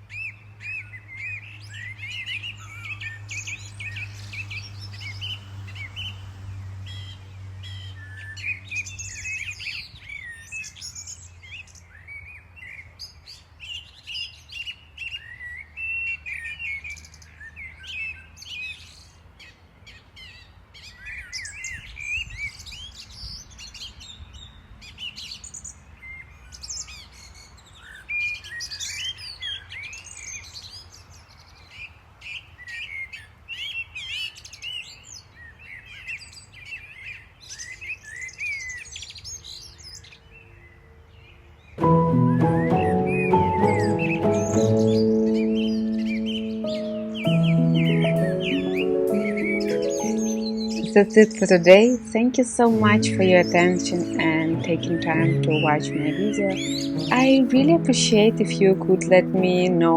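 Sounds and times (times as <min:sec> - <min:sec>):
small birds chirping: 0:41.8 - 0:59.9.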